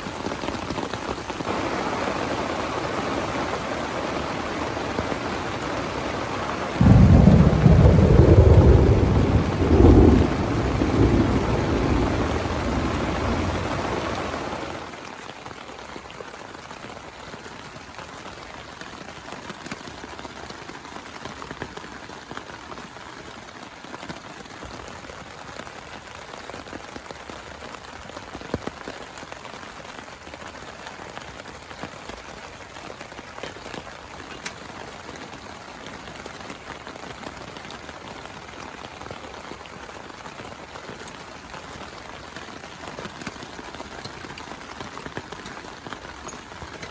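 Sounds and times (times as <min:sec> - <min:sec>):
steady rain falling: 0:00.0 - 0:46.9
thunder rolling: 0:04.7 - 0:14.9.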